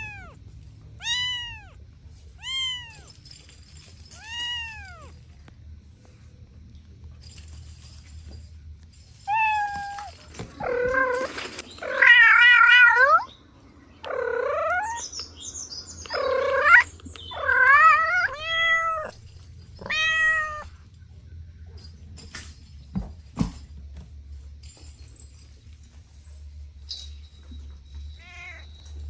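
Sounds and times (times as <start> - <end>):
cat meowing: 0.0 - 0.4, 1.0 - 1.8, 2.4 - 3.1, 4.2 - 5.2, 14.0 - 15.0, 16.1 - 19.2, 19.8 - 20.8.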